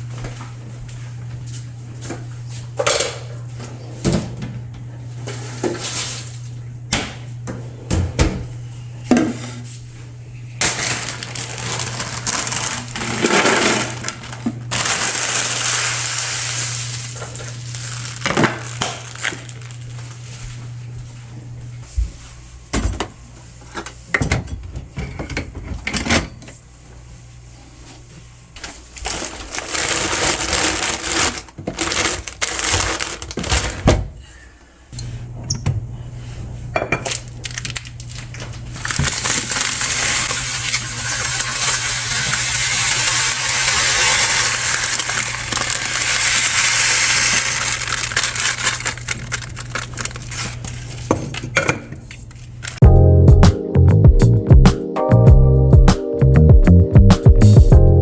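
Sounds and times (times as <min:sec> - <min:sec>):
plastic packaging crinkling: 0:10.6 - 0:20.2, 0:28.9 - 0:33.8, 0:37.1 - 0:51.1.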